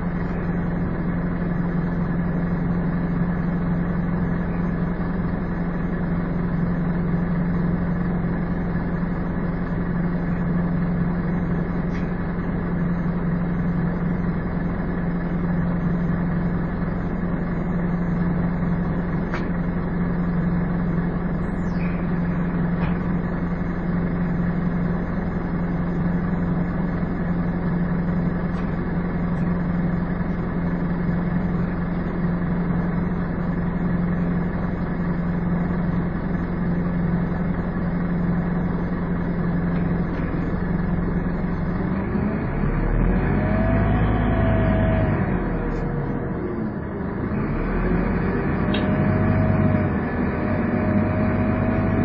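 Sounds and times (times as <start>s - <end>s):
bus diesel engine running: 0.0s - 52.0s.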